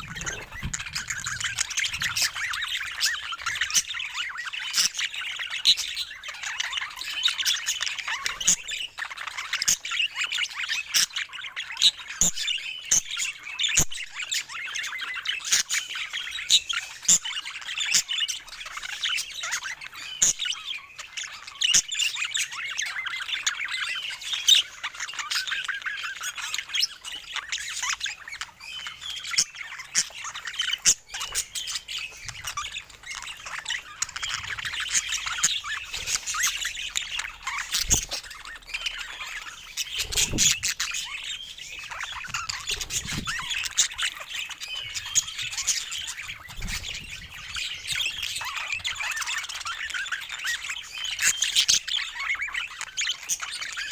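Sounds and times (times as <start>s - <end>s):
budgerigars chattering: 0.0s - 53.9s.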